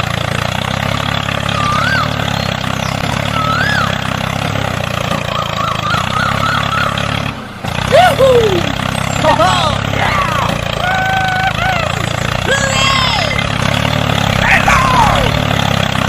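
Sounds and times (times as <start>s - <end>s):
tractor engine idling: 0.0s - 16.0s
high warbling whistles: 1.4s - 7.3s.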